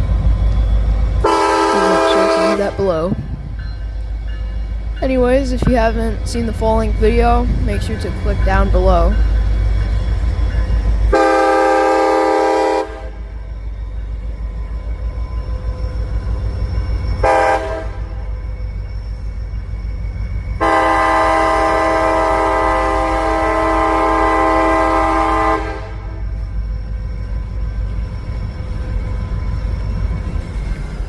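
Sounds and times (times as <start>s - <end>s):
train rumbling past: 0.0s - 31.0s
train air horn blasts: 1.2s - 2.8s, 11.1s - 13.2s, 17.2s - 18.2s, 20.6s - 26.2s.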